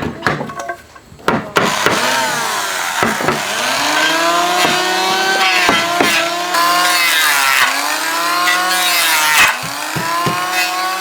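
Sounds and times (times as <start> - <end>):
chainsaw cutting wood: 1.6 - 11.0
knocks on wood: 3.0 - 3.4, 9.6 - 10.4.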